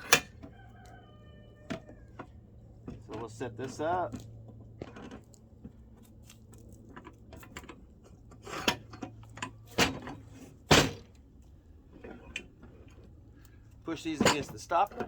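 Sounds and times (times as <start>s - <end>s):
wood and metal parts clunking: 1.7s - 15.0s.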